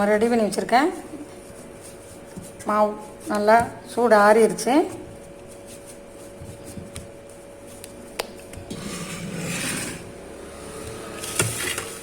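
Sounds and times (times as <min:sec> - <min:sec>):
spoon scraping a pan: 0:08.7 - 0:10.2.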